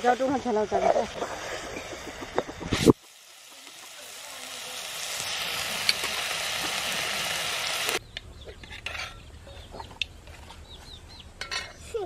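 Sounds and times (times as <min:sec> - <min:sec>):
curry sizzling in a pot: 0:00.0 - 0:08.0.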